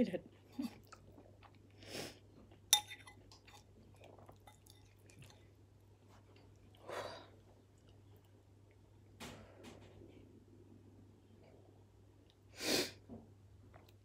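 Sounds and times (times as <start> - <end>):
close-mouthed chewing: 2.5 - 8.8
metal spoon clinking bowl: 2.7 - 3.7, 4.4 - 5.4.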